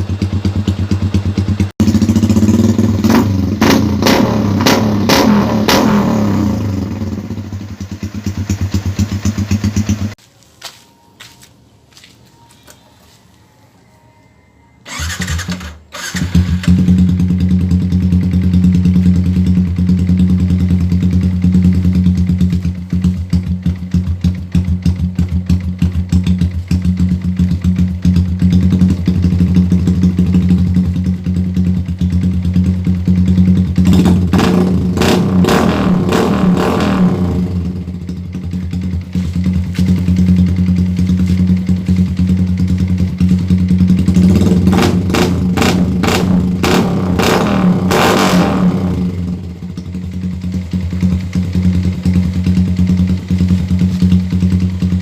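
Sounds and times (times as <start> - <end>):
motorcycle engine revving: 0.0 - 10.2, 14.8 - 55.0
motorcycle engine starting and idling: 0.0 - 10.2, 14.8 - 55.0.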